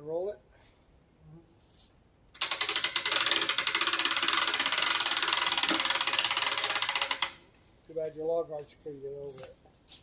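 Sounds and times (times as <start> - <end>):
winch ratcheting clatter: 2.4 - 7.4.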